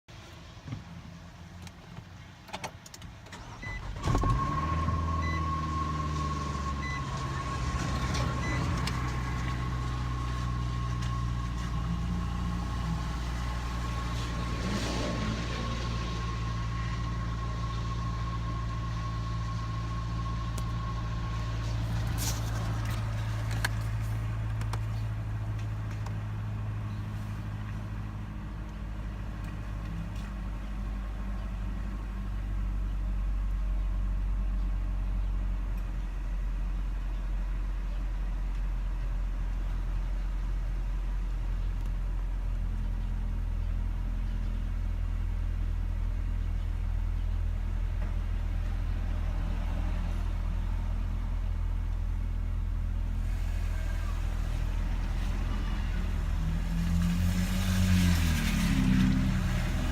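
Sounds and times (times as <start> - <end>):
car engine idling rough: 15.4 - 56.4.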